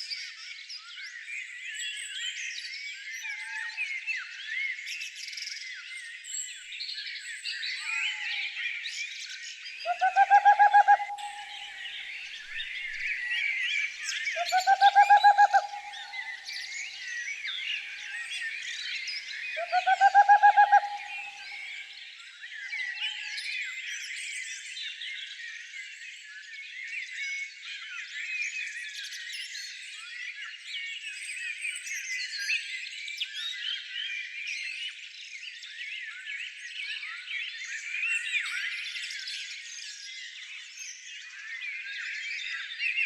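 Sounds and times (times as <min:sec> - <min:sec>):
birds chirping and twittering: 0:05.8 - 0:23.6
loud low bird trill: 0:09.9 - 0:13.5, 0:14.3 - 0:16.8, 0:19.6 - 0:21.8.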